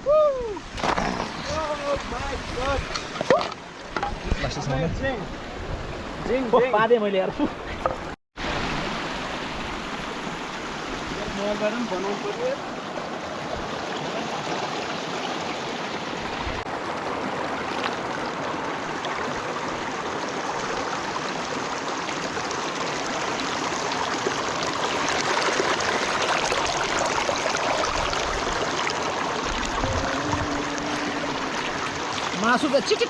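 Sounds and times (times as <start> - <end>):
stream rushing over rocks: 0.5 - 7.2, 8.4 - 33.0.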